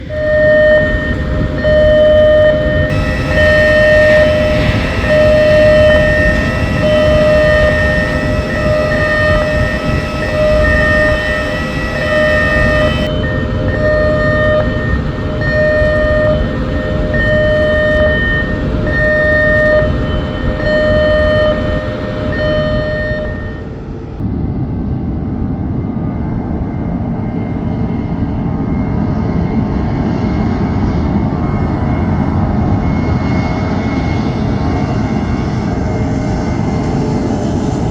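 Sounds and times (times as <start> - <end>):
horn-like tone: 0.0 - 23.7
loud rumble: 0.0 - 23.7.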